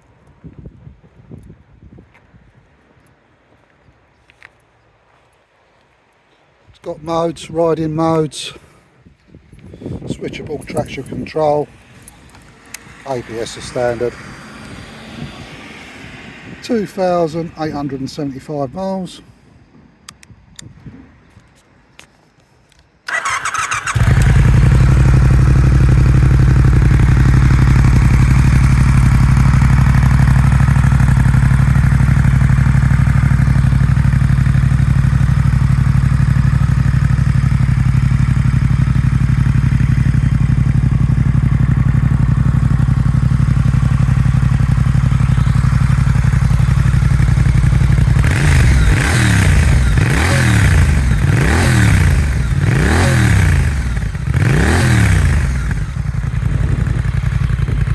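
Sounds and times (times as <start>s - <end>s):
motorcycle engine idling and revving: 9.8s - 18.0s, 23.1s - 57.9s.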